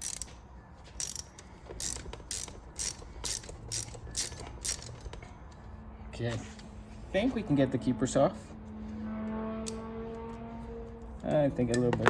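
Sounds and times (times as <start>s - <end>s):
valve spring compressor clicks: 1.0s - 5.6s.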